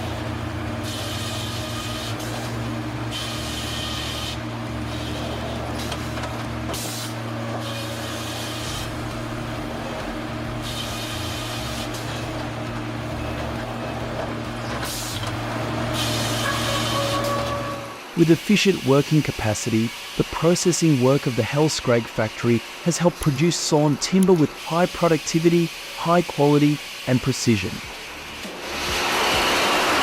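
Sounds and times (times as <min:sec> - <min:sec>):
sawmill machinery humming: 0:00.0 - 0:30.0
hissing bursts: 0:00.8 - 0:09.6, 0:10.4 - 0:12.3.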